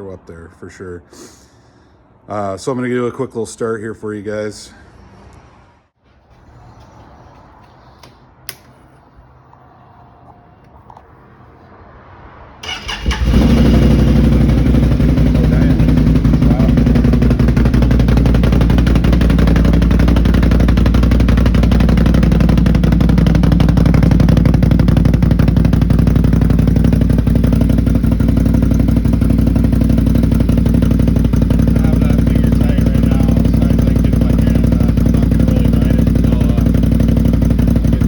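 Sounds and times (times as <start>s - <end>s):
atv engine idling: 12.6s - 38.0s.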